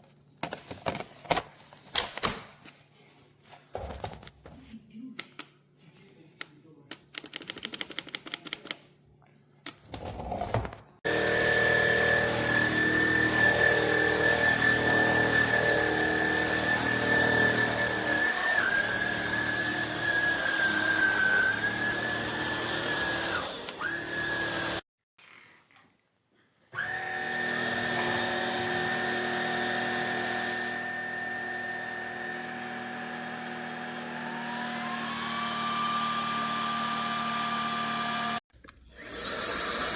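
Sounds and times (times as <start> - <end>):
vacuum cleaner motor whine: 11.1 - 24.8, 26.7 - 39.9.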